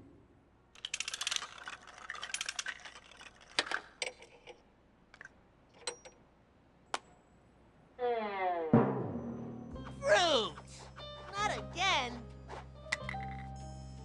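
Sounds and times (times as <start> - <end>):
rattling run of clicks: 0.8 - 4.6.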